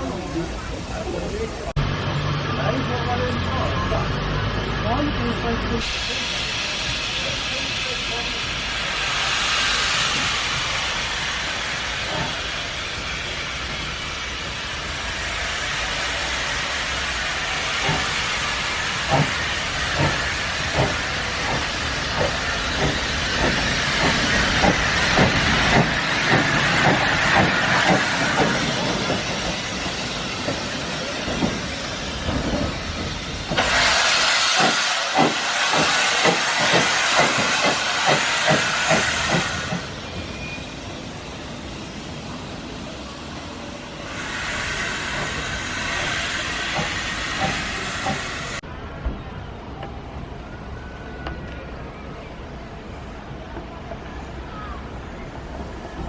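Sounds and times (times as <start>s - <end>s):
steam locomotive hissing: 0.0s - 48.7s
train wheels clicking over rail joints: 17.0s - 40.0s, 44.2s - 48.6s.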